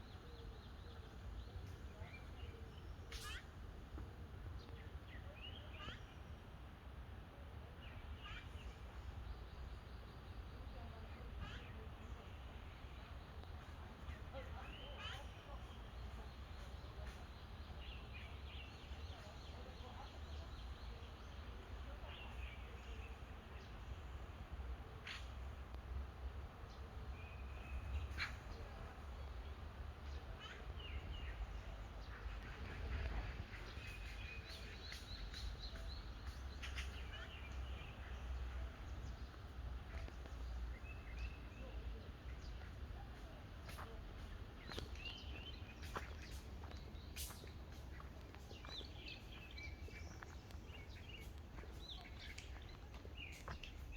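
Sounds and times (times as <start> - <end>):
birds chirping: 0.0 - 3.8, 26.7 - 53.9
low rumble of background noise: 0.0 - 53.9.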